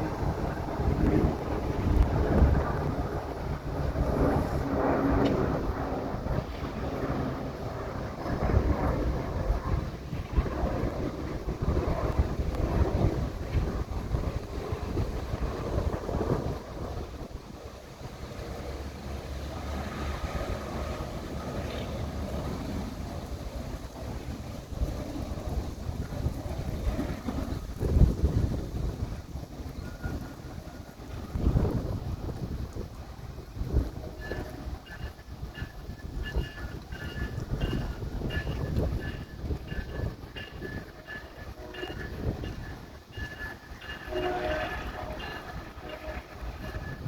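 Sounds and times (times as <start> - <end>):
diesel train rumbling: 0.0 - 47.0
wind buffeting microphone: 0.0 - 47.0.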